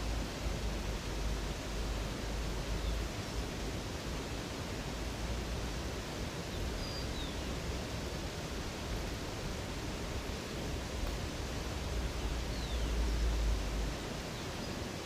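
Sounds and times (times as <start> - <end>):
water rushing: 0.0 - 15.0
faint high bird chirp: 6.8 - 7.4.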